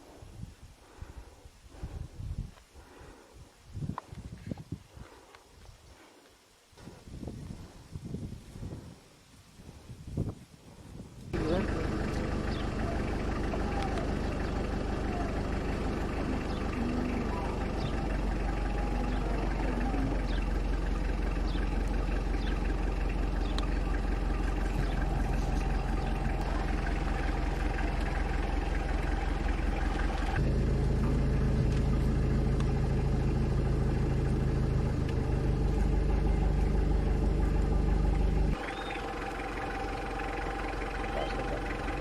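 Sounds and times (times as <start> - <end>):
vehicle engine running: 11.3 - 42.0.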